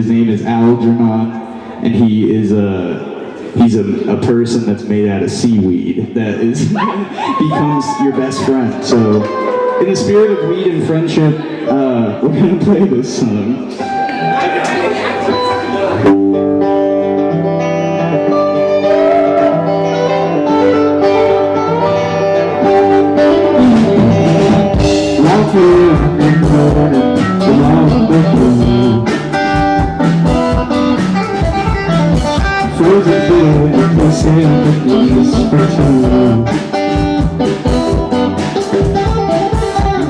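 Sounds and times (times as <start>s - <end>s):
guitar sustained notes: 6.8s - 40.0s
drums: 18.5s - 40.0s.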